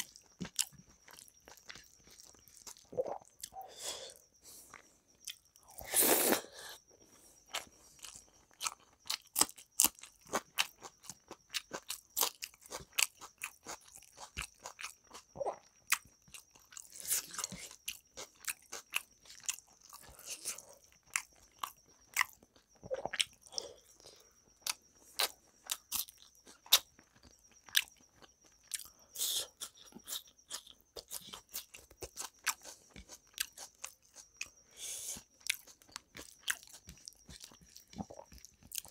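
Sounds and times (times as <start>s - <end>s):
close chewing with wet smacks: 0.0s - 3.5s, 7.5s - 24.0s, 24.6s - 38.9s.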